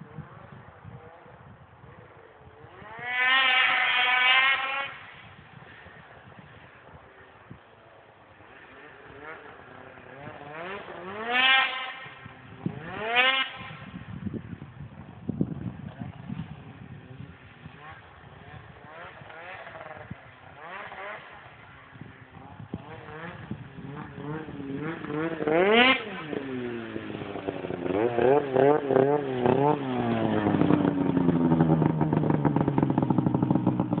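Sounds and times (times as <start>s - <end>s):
snowmobile engine revving: 1.9s - 34.0s.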